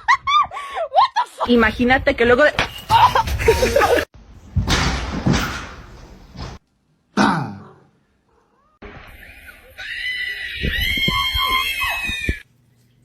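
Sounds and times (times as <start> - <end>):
high-pitched scream: 9.1 - 12.4.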